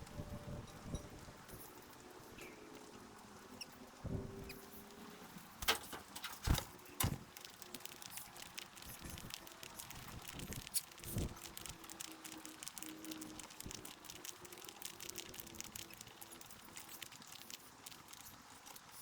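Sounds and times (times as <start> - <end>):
birds pecking at feeder: 5.5 - 19.0.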